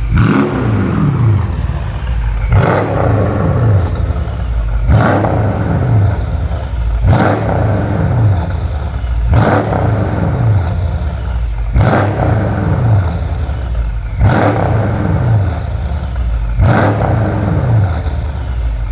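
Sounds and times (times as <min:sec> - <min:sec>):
car engine revving through exhaust: 0:00.0 - 0:18.9.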